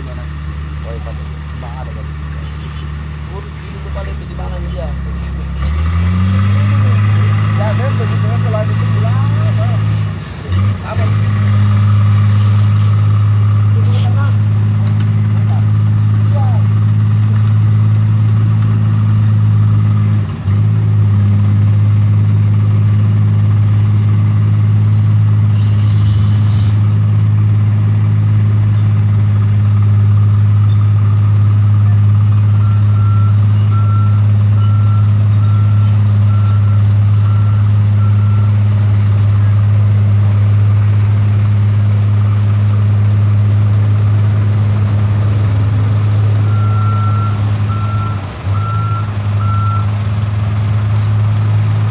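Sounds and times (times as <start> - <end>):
diesel truck engine running: 0.0 - 51.9
reversing alarm beeping: 32.6 - 38.6, 46.4 - 50.0.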